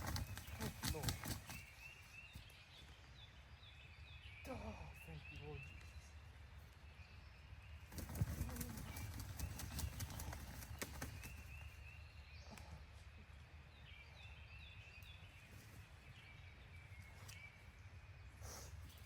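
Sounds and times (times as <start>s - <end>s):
distant songbird calls: 0.0s - 19.0s.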